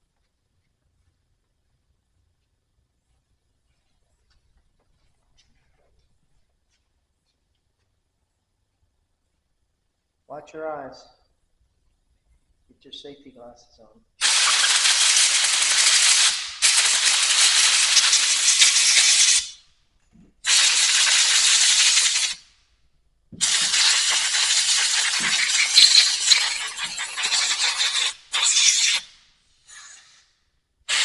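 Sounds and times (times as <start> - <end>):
compressed air blowgun hissing: 14.2 - 19.6, 20.4 - 22.4, 23.4 - 30.3.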